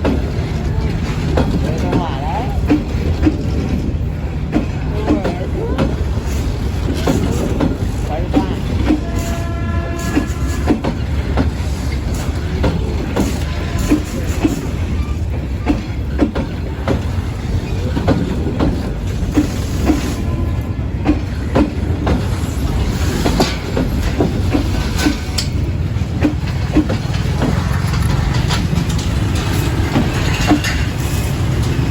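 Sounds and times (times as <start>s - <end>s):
low train rumble: 0.0s - 31.9s
train wheels clicking over rail joints: 0.0s - 31.9s.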